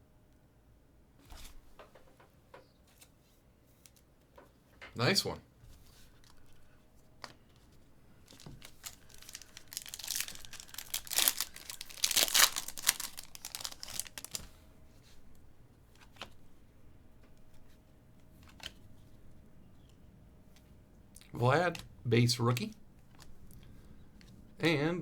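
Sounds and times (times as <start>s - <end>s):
wrapper tearing and crinkling: 8.3s - 14.5s.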